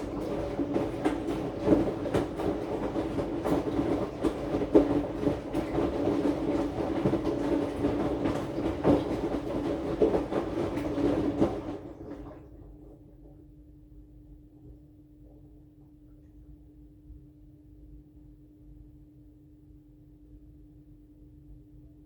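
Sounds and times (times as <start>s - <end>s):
clothes knocking in drum: 0.0s - 12.4s
washing machine motor hum: 0.0s - 16.6s.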